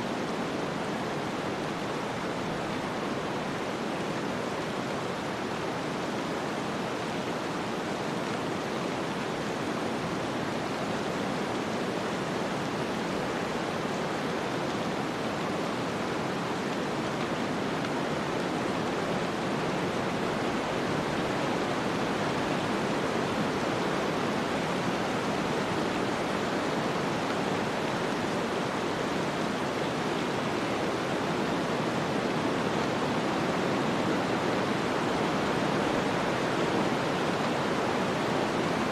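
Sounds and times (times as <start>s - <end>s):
snowstorm hiss: 0.0s - 38.9s.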